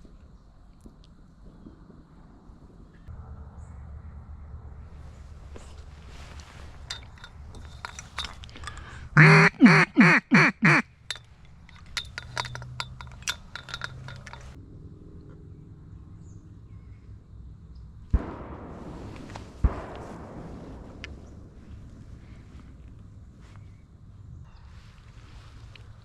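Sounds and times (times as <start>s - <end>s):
duck call quacks: 9.2s - 10.9s
small clicks: 11.1s - 14.6s.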